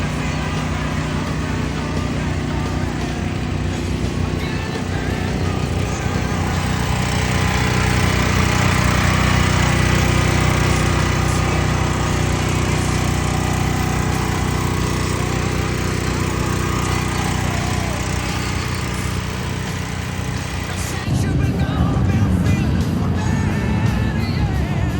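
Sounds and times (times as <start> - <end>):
dirt bike engine running steadily: 0.0 - 24.9.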